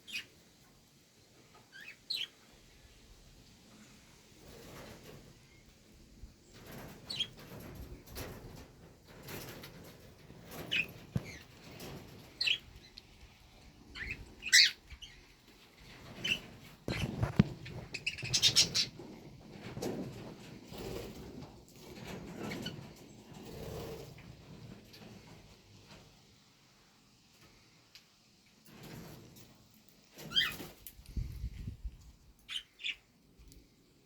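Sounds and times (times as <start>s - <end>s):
rustling: 3.8s - 26.1s
pet bird chirping: 13.9s - 15.2s, 17.8s - 18.9s, 32.5s - 33.1s.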